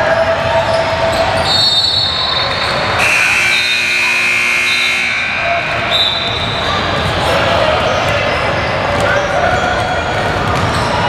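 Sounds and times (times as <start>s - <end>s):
steady high-pitched tone: 3.0s - 6.8s
basketball bouncing on court: 8.0s - 11.0s.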